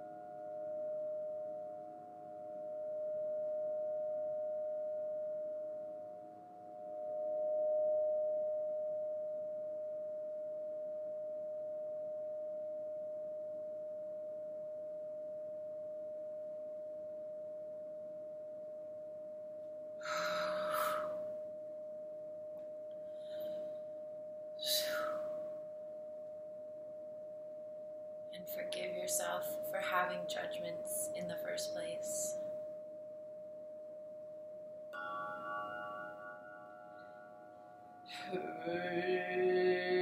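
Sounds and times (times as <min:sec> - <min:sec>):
steady pure tone: 0:00.0 - 0:40.0
breathy whoosh: 0:20.0 - 0:21.3.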